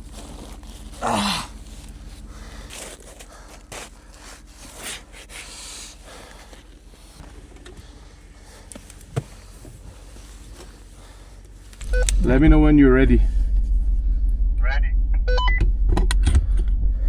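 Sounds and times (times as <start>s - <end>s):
rustling handling noise: 0.0s - 12.4s
low steady hum: 0.0s - 17.0s.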